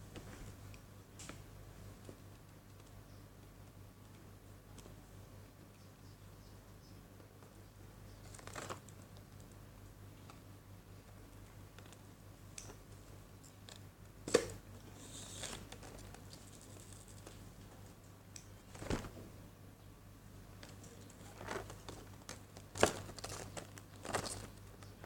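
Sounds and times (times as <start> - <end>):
packaging crinkling: 8.2 - 9.0, 20.6 - 24.7.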